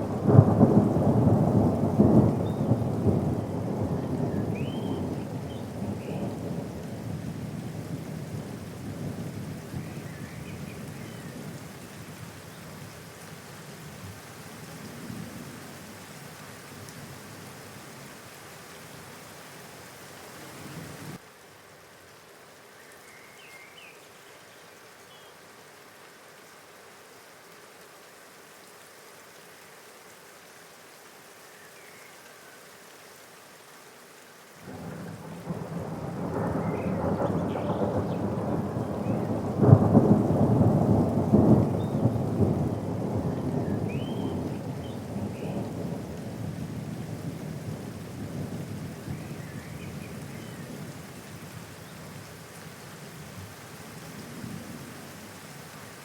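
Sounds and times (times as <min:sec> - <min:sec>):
thunder rumbling: 0:00.0 - 0:09.9, 0:34.7 - 0:51.0
steady rain falling: 0:00.0 - 0:56.0.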